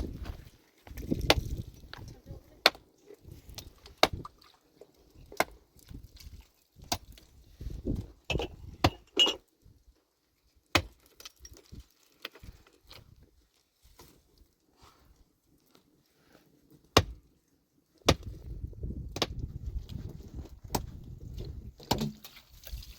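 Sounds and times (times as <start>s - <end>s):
metal tool striking rock: 8.3s - 9.4s, 21.8s - 22.3s.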